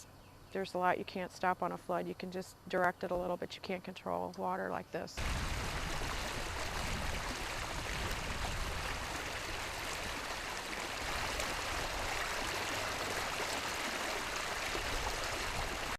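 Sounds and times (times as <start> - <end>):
floodwater rushing: 5.2 - 15.9.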